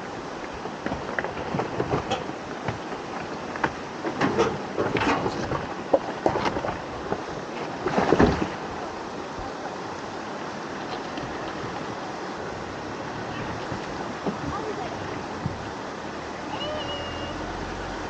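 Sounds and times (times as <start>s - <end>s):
rushing river water: 0.0s - 18.0s
vehicle splashing through river: 6.8s - 18.0s.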